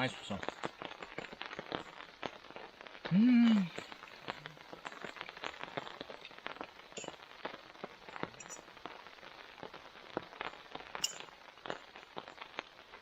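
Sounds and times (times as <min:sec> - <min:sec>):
rain drops ticking: 0:00.0 - 0:13.0
rain hiss: 0:00.0 - 0:13.0.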